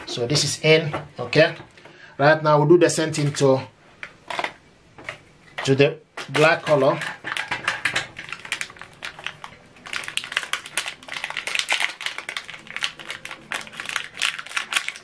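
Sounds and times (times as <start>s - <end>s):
small clicks and packaging rustles: 3.2s - 15.0s.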